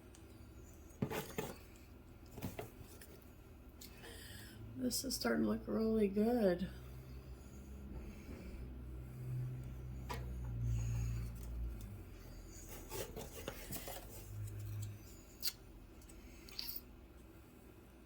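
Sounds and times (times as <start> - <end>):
scissors cutting cardboard: 1.0 - 1.7, 12.6 - 14.8.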